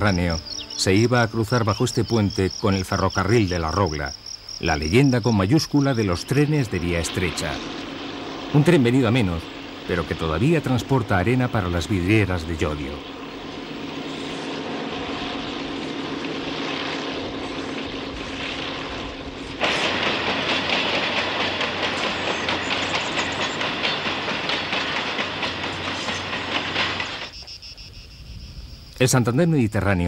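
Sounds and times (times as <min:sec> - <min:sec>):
train engine hum: 0:05.1 - 0:27.5
train wheels clacking on rails: 0:05.8 - 0:27.4.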